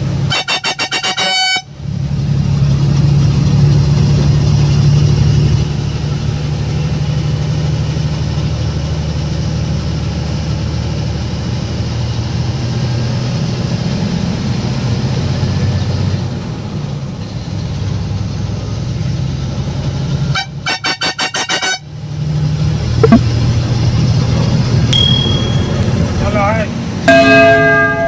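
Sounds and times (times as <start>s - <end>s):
lorry engine running: 22.6s - 28.0s
horn short toots: 27.1s - 28.0s.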